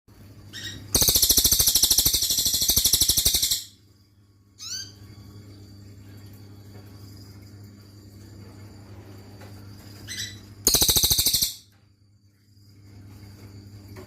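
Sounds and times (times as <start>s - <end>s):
songbird trilling: 0.5s - 3.7s, 10.1s - 11.6s.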